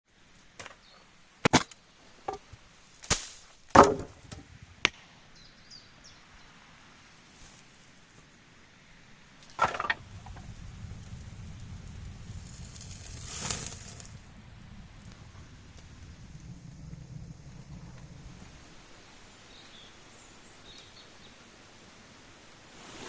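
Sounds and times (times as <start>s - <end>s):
wood knocking and cracking: 3.1s - 5.0s, 9.4s - 10.4s.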